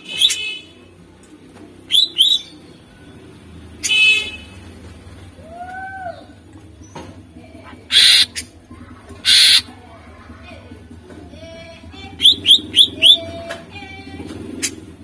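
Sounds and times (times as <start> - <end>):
bird harsh rasping calls: 1.9 - 2.6, 7.8 - 8.6, 9.2 - 9.8, 12.2 - 13.3, 14.5 - 14.9.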